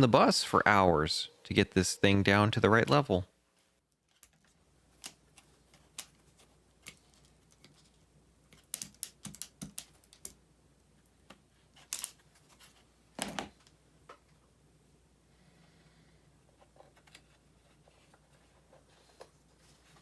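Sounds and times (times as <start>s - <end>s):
small hard objects clicking: 8.5s - 10.4s.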